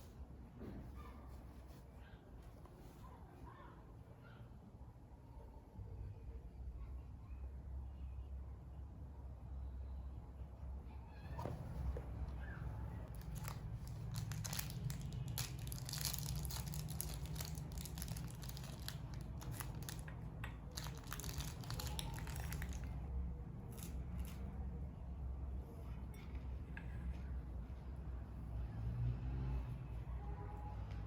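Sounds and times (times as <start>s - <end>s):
paper or plastic wrapping crinkling: 13.1s - 20.1s, 20.7s - 23.0s.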